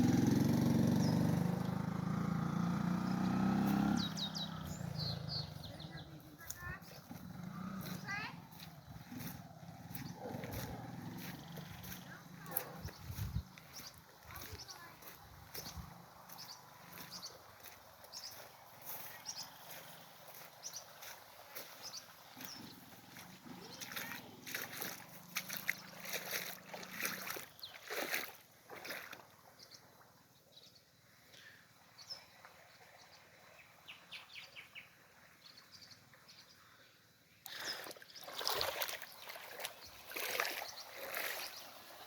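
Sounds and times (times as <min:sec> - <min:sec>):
water dripping and splashing: 0:06.3 - 0:29.5, 0:37.4 - 0:42.0.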